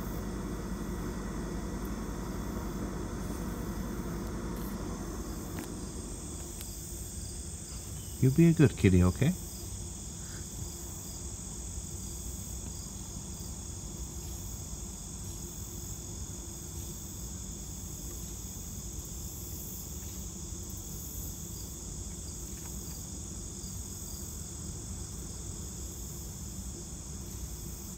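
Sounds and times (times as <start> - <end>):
insects trilling: 0.0 - 27.9
low background hum: 0.0 - 27.9.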